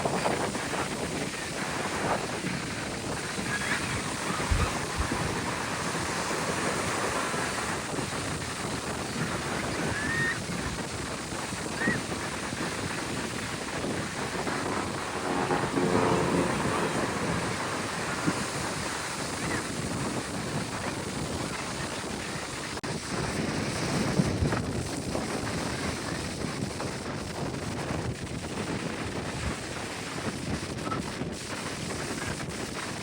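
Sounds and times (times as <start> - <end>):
beach surf: 0.0 - 33.0
wind on microphone: 0.0 - 33.0
brief tonal hum: 13.8 - 19.2.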